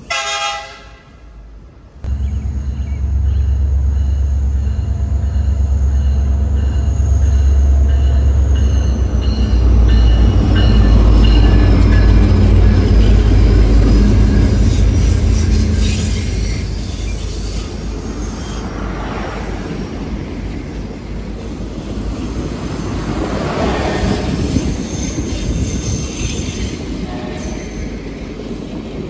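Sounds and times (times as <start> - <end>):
diesel locomotive engine rumble: 0.0 - 29.0
wheel squeal: 8.2 - 18.8, 21.5 - 28.0.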